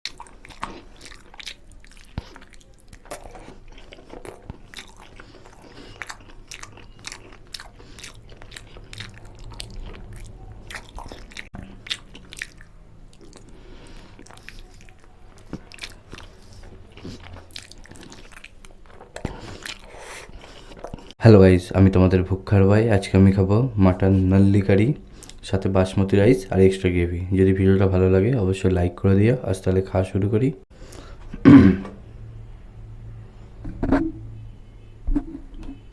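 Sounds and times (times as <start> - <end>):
chewing and biting: 0.0 - 21.1.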